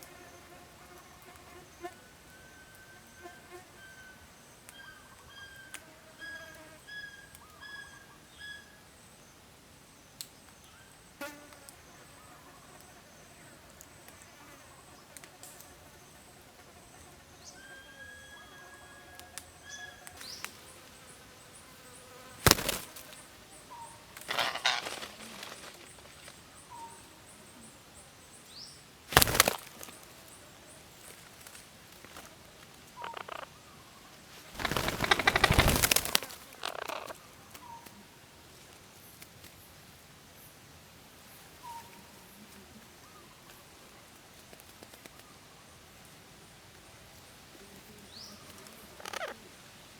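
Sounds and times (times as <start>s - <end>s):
faint bird chirps: 1.8s - 9.4s, 17.3s - 31.2s, 41.6s - 44.0s
rustling or wing flapping: 22.4s - 23.2s, 24.1s - 26.4s, 29.1s - 30.2s, 34.3s - 37.2s.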